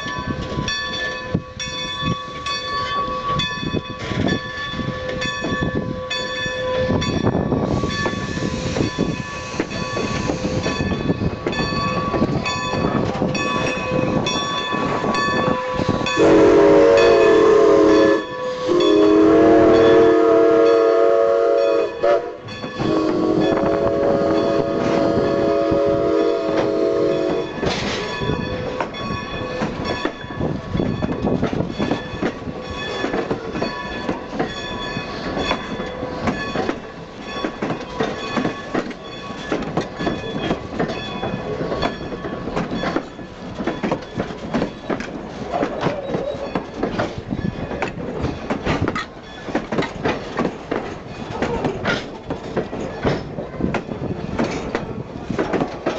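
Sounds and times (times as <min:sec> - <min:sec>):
train wheels clattering: 0:00.0 - 0:55.9
steam locomotive whistle: 0:15.4 - 0:27.6.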